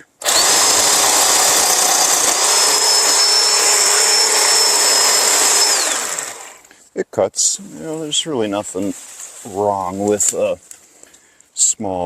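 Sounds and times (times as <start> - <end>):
electric chainsaw cutting branch: 0.0 - 6.7.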